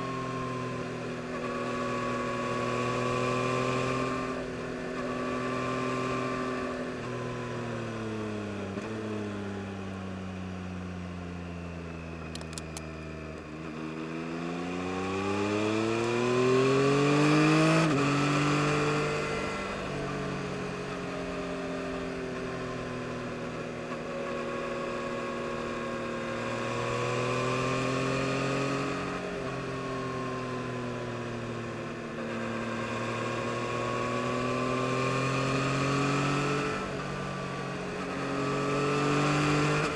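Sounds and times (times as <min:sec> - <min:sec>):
motorcycle engine revving: 0:13.4 - 0:30.5, 0:31.2 - 0:39.9.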